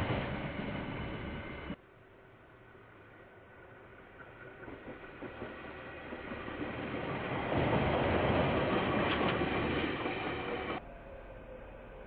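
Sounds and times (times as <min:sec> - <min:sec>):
train rushing past: 0:00.0 - 0:01.8.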